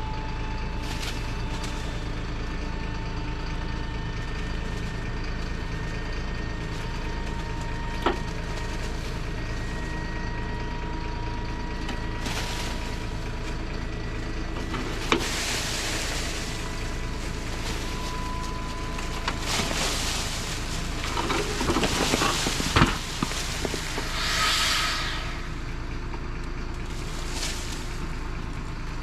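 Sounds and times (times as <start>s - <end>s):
diesel truck engine running: 0.0s - 29.0s
engine whine: 0.0s - 29.0s
hissing rush: 22.1s - 26.0s.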